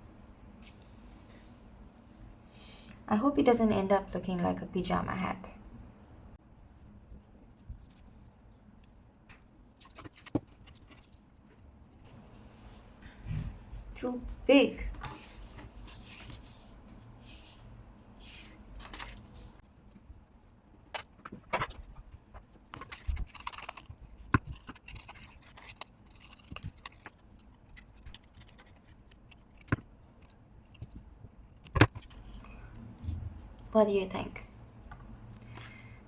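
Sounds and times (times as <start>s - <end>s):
paper rustling: 6.8s - 12.7s, 15.0s - 17.6s, 18.2s - 33.2s.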